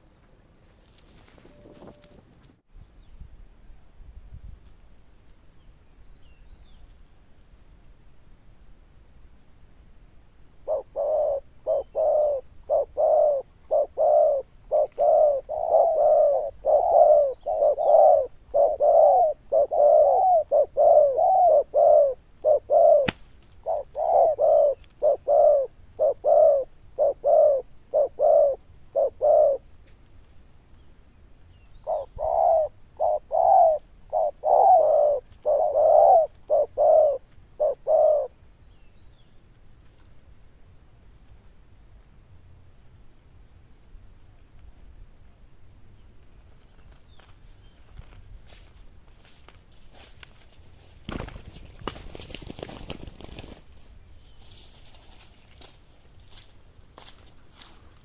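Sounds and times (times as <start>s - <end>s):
dove cooing: 10.6s - 29.7s, 31.8s - 38.4s.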